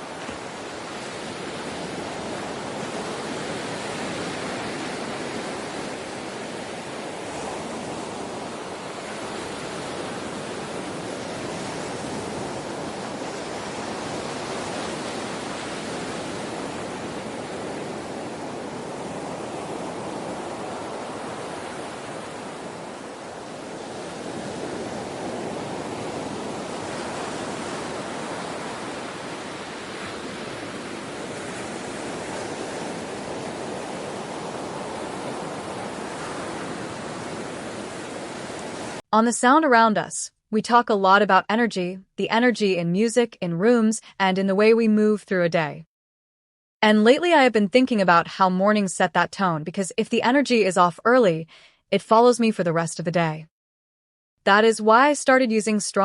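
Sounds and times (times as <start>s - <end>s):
rushing water: 0.0s - 39.0s.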